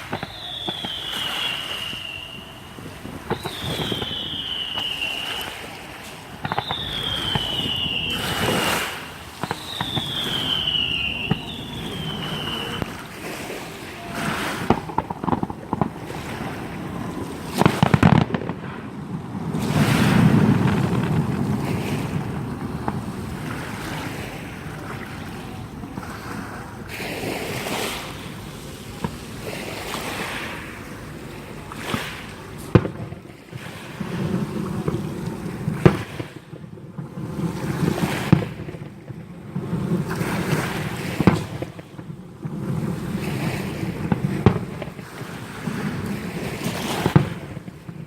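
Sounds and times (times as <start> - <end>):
whistling firework shells: 0.0 - 24.8, 39.9 - 41.9
firework bangs and crackle: 0.0 - 48.0.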